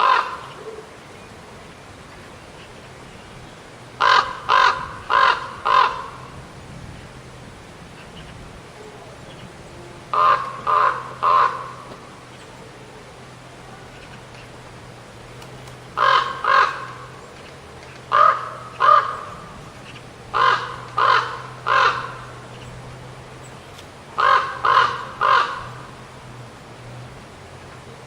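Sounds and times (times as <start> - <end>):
raven cawing: 0.0 - 0.9, 4.0 - 6.4, 9.9 - 12.4, 15.8 - 23.2, 24.1 - 26.3.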